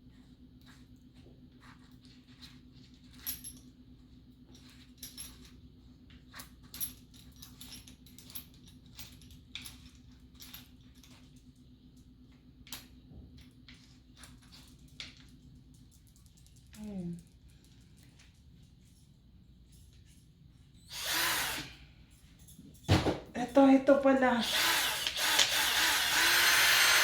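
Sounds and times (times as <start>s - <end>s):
light clicks and metallic clinks: 6.4s - 20.4s, 22.1s - 22.9s.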